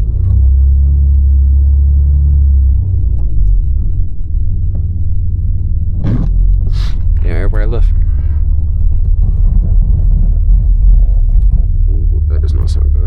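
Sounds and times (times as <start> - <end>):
car engine droning under throttle: 0.0 - 13.0.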